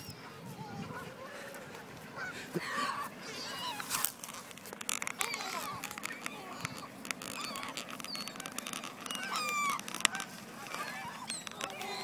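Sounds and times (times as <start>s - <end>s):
waterfowl honking and squawking: 2.1s - 4.0s, 5.2s - 12.0s.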